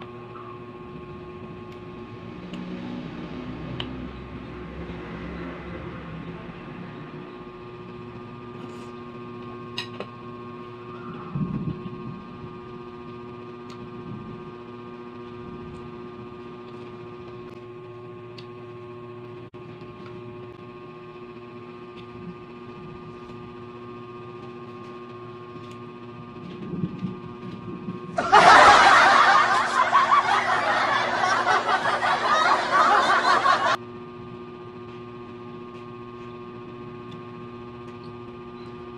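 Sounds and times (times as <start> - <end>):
electrical hum: 25.2 - 33.8.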